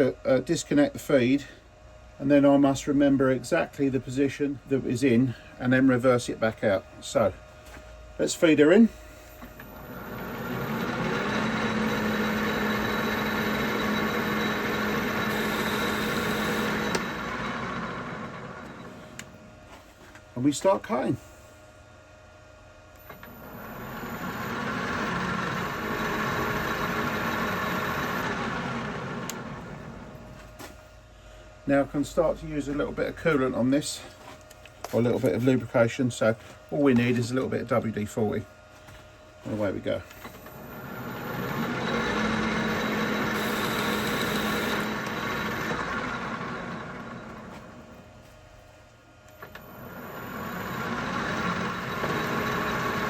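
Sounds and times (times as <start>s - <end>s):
low hum: 8.9s - 20.0s
metal lathe cutting: 9.7s - 19.2s, 23.2s - 30.3s, 40.5s - 47.8s, 49.6s - 53.0s.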